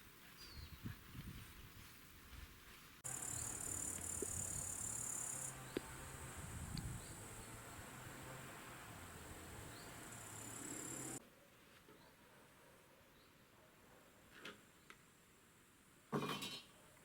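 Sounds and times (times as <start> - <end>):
insects chirring: 3.0 - 7.6, 9.7 - 11.2.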